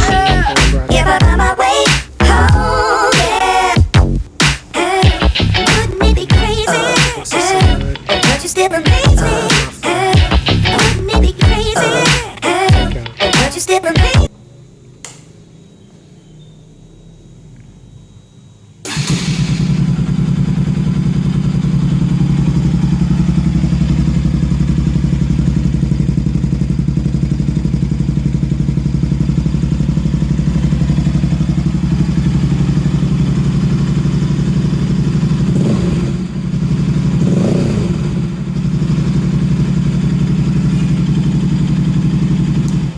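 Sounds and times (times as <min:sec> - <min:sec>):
motorcycle engine idling and revving: 0:10.1 - 0:11.9, 0:14.2 - 0:42.9.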